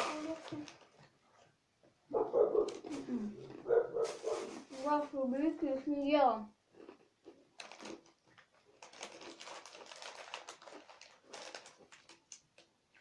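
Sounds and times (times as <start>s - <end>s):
plastic wrappers crinkling: 0.0s - 1.5s, 6.8s - 13.0s.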